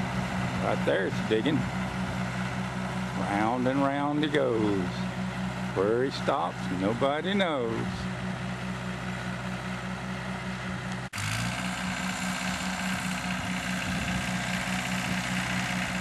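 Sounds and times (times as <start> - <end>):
tractor engine pulling a plow: 0.0 - 16.0.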